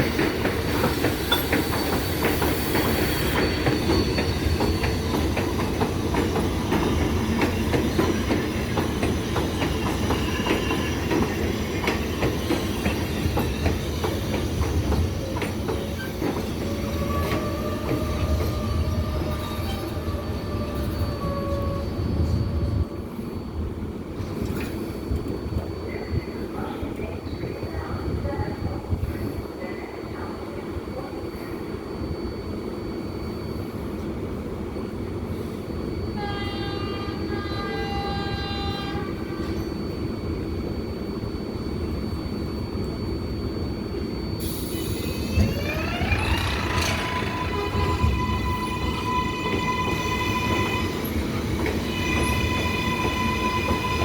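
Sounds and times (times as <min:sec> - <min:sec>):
train wheels clicking over rail joints: 0:00.0 - 0:20.0, 0:45.3 - 0:54.0
low rumble of subway train: 0:00.0 - 0:54.0
train horn blast: 0:36.2 - 0:39.7, 0:47.3 - 0:51.1, 0:51.9 - 0:54.0.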